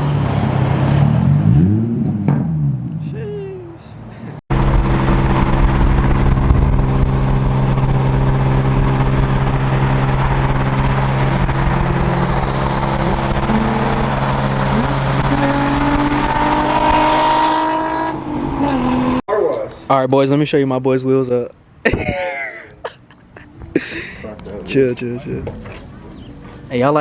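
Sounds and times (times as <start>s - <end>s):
car engine running: 4.5s - 19.2s.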